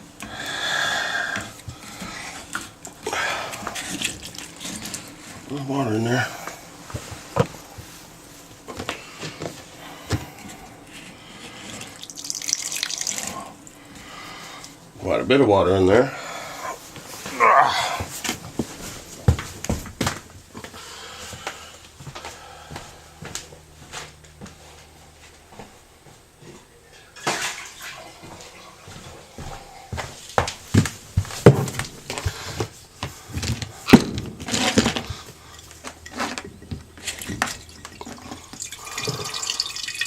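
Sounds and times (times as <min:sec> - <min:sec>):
water running and splashing: 0:03.0 - 0:05.2, 0:11.8 - 0:13.5, 0:37.0 - 0:40.0.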